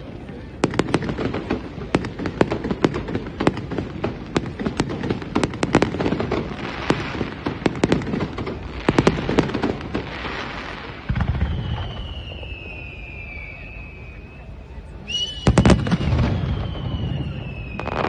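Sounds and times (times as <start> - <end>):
firework bangs and crackles: 0.0 - 18.0
firework whistle gliding downward: 10.3 - 18.0
deep firework boom: 10.8 - 13.3, 15.4 - 18.0.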